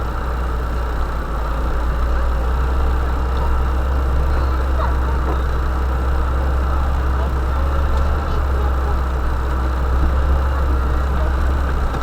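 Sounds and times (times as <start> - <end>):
van engine droning: 0.0 - 12.0.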